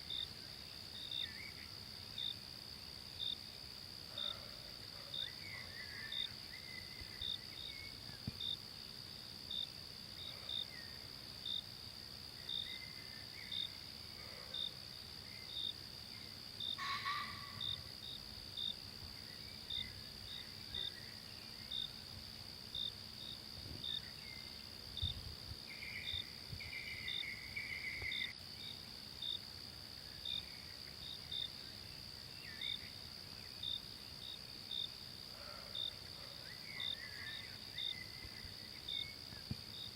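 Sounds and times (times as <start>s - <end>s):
cricket chirping: 0.0s - 39.9s
high-pitched insect drone: 15.4s - 22.0s.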